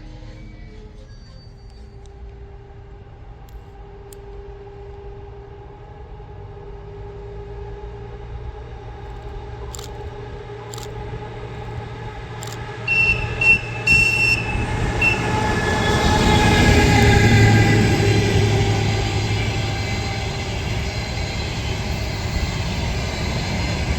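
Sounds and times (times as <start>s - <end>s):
wheels squealing on rails: 0.0s - 3.2s, 8.8s - 23.9s
train approaching: 0.0s - 23.9s
sharp clicks: 9.1s - 11.0s, 11.6s - 14.2s.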